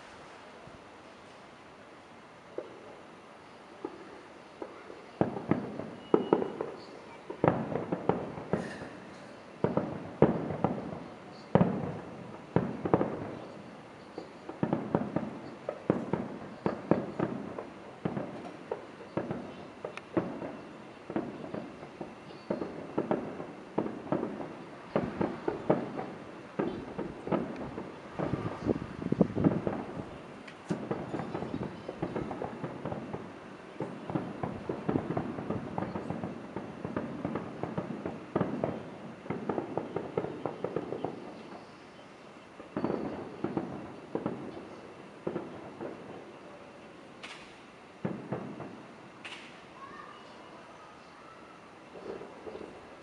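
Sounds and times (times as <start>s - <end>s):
fireworks bursting: 0.0s - 53.0s
single firework pop: 49.2s - 49.6s.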